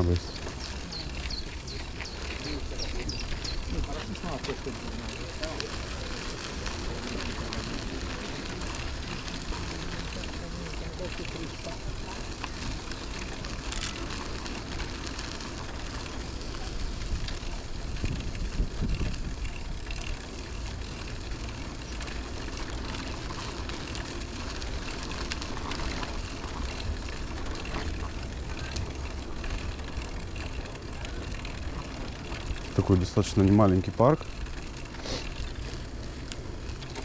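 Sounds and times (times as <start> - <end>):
bicycle rolling rumble: 0.0 - 37.0
wind rushing over microphone: 17.1 - 19.5.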